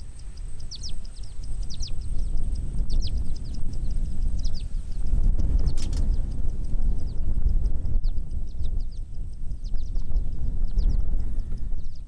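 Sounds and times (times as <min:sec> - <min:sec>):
birds chirping: 0:00.0 - 0:12.0
low rumbling noise: 0:00.0 - 0:12.0.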